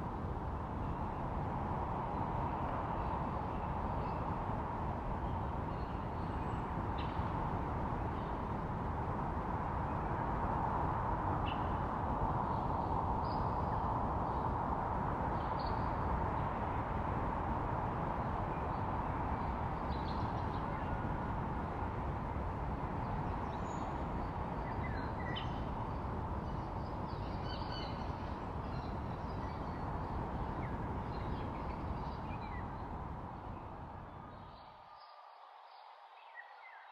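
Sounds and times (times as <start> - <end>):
steady rushing noise: 6.3 - 34.5.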